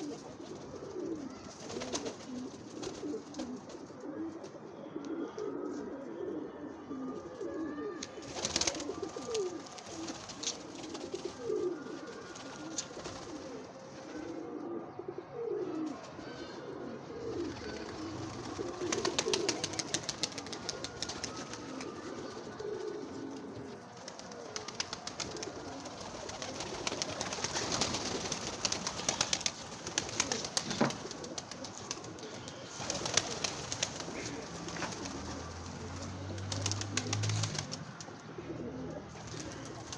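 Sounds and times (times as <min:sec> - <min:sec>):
pigeons cooing: 0:00.0 - 0:39.9
wings and feet rustling: 0:17.2 - 0:38.1.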